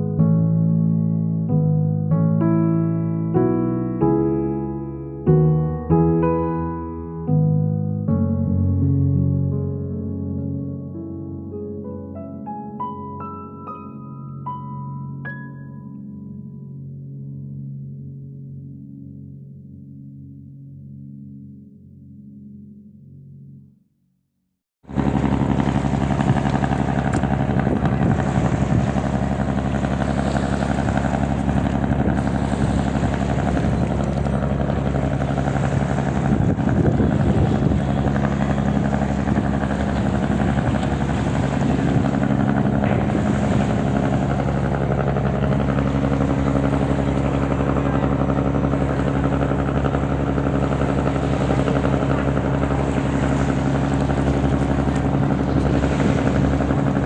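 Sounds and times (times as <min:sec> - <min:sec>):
engine running steadily: 0:24.9 - 0:57.0.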